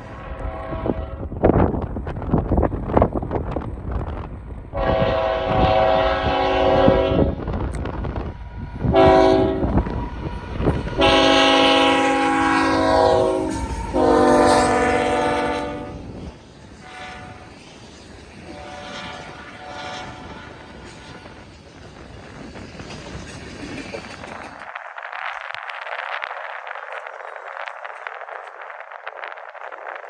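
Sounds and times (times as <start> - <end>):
locomotive air horn blasts: 0.0 - 1.3, 4.7 - 7.4, 8.9 - 9.7, 11.0 - 16.2, 16.8 - 17.5, 18.5 - 21.4
rail wheels clattering: 1.0 - 30.0.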